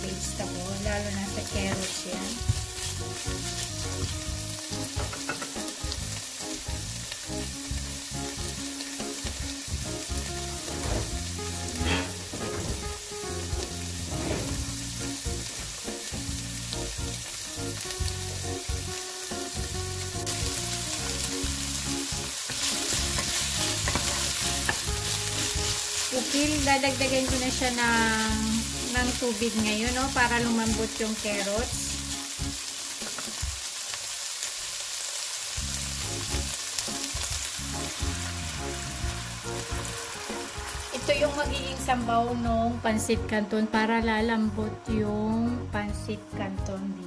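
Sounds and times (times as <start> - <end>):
food sizzling in oil: 0.0 - 43.3
wooden spatula stirring: 22.3 - 29.2.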